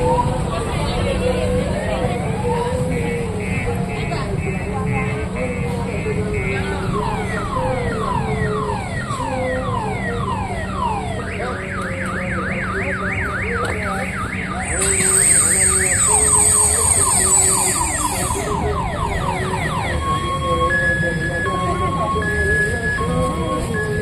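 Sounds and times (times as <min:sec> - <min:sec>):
car alarm siren: 0:00.0 - 0:24.0.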